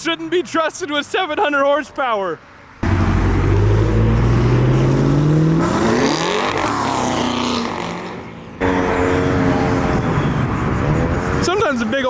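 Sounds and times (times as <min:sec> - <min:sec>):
car engine passing by: 0:02.8 - 0:11.4
car engine revving: 0:02.8 - 0:11.4.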